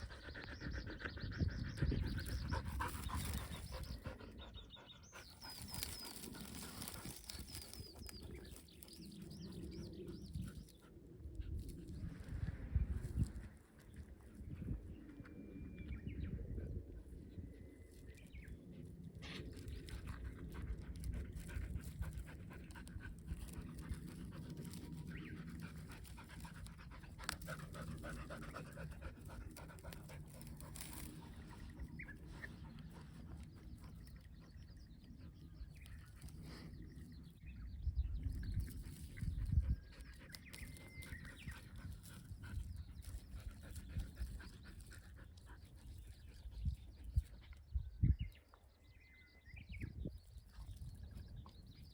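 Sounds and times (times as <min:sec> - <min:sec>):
dog panting: 0:20.3 - 0:34.7.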